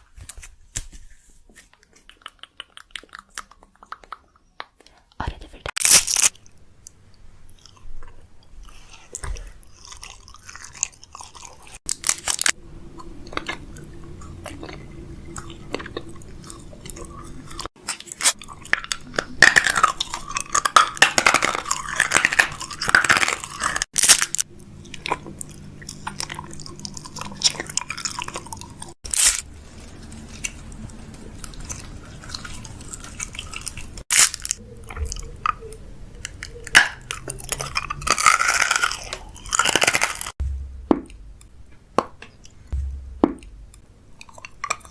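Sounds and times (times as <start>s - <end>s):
snacks rattling and crunching: 1.6s - 44.9s
wrappers crinkling: 11.8s - 12.6s, 29.0s - 34.6s.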